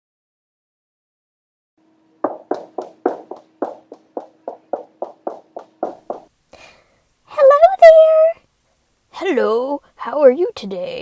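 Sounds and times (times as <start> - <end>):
faint steady hum: 1.8 - 11.0
quick short taps: 2.2 - 6.3.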